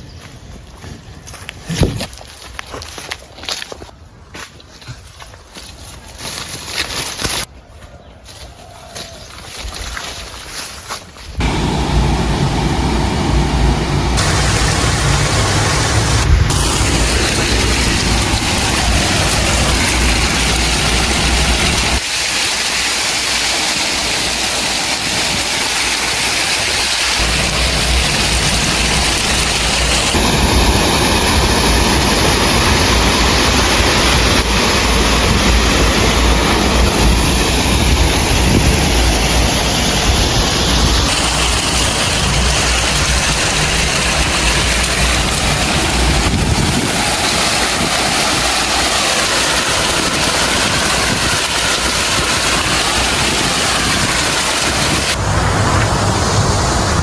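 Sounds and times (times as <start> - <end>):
heavy diesel engines running: 11.4 - 22.0, 26.9 - 57.0
loud rushing noise: 11.4 - 22.5, 23.2 - 57.0.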